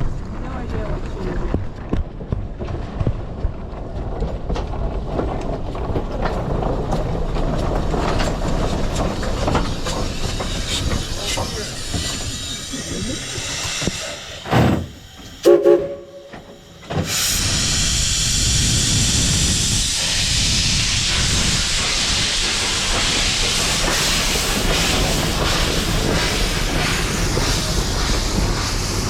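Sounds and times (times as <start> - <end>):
steam venting hiss: 8.4 - 29.0
steam locomotive chime whistle: 15.4 - 16.7.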